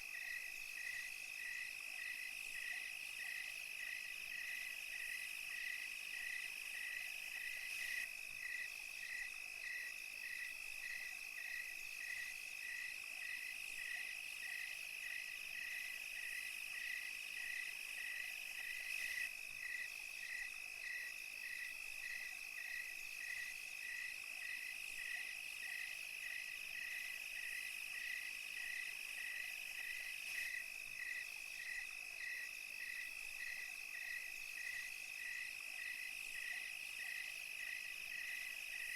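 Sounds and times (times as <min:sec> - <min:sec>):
cricket chirping: 0:00.0 - 0:38.9
insects trilling: 0:00.1 - 0:38.9.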